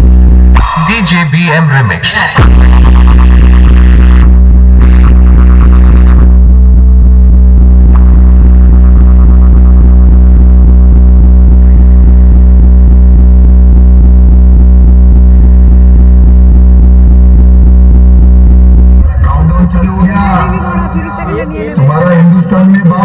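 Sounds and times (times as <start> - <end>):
bass-heavy remix music: 0.0 - 23.0.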